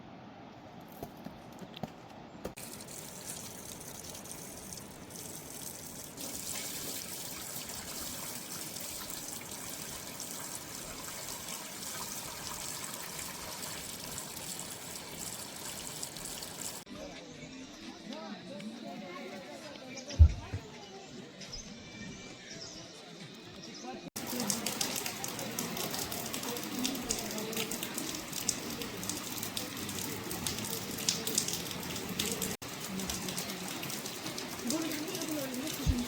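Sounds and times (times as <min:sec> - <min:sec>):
rain falling: 0:24.2 - 0:36.0.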